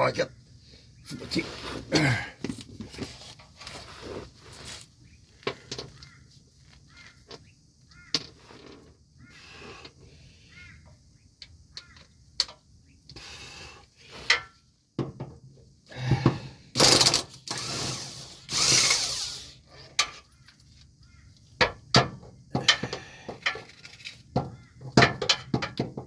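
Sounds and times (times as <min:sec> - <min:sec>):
ratchet wrench ratcheting: 0:16.8 - 0:19.6.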